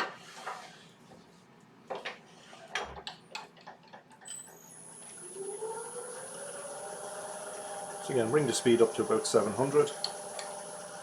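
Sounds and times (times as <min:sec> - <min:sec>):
wood lathe whine: 0:04.5 - 0:11.0
lathe motor spinning up: 0:04.6 - 0:11.0.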